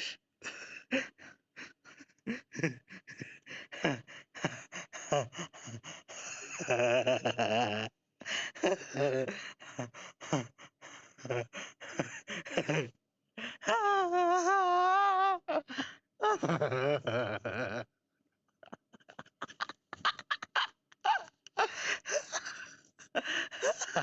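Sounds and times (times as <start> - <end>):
person laughing hard: 2.3 - 7.9, 8.5 - 9.5, 11.2 - 12.9, 13.6 - 17.8, 18.6 - 24.0.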